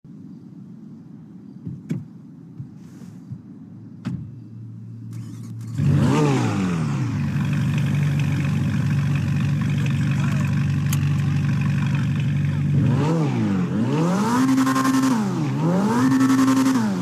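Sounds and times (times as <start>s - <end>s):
car engine starting and idling: 3.9s - 17.0s
starter motor whir: 5.1s - 12.3s.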